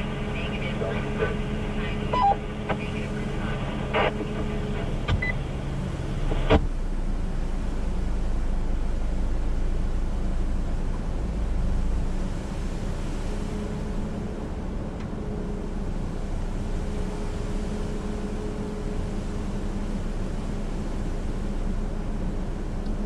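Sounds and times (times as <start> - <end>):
radio receiver hum: 0.0 - 6.8
steady rushing noise: 0.0 - 22.8
short beeps: 2.1 - 2.4.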